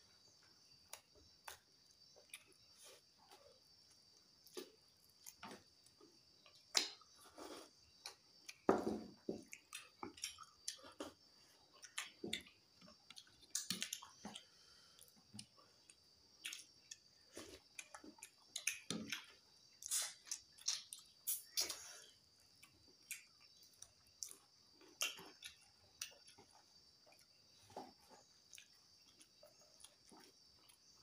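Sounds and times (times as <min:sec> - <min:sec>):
clicks and squishes of eating: 0:00.5 - 0:31.0
wet chewing and lip smacks: 0:09.4 - 0:21.8, 0:22.4 - 0:27.5.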